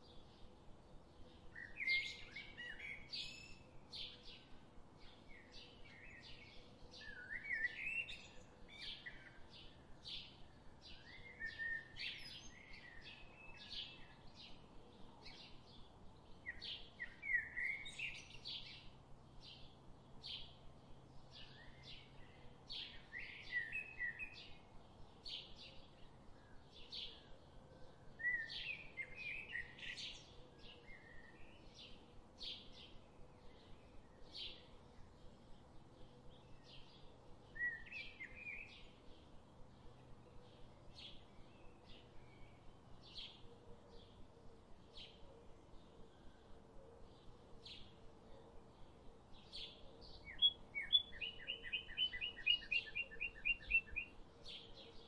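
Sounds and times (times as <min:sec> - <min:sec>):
birds chirping and singing: 0:28.2 - 0:55.0.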